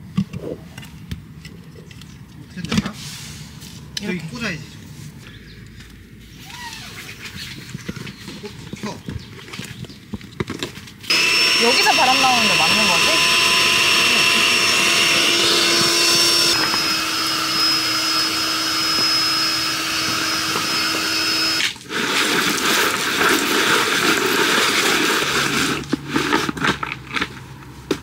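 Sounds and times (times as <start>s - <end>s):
electric air pump running: 11.1s - 26.8s.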